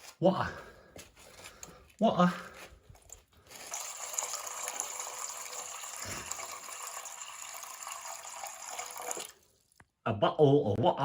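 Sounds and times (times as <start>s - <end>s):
water running: 3.5s - 9.8s.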